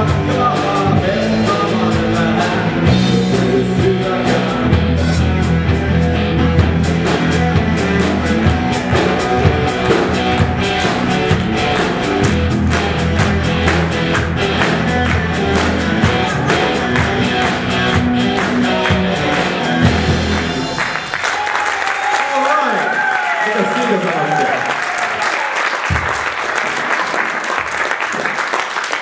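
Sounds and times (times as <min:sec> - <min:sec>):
distorted electric guitar: 0:00.0 - 0:21.4
drums hitting: 0:00.0 - 0:21.6, 0:25.8 - 0:26.4
bass: 0:00.0 - 0:23.3.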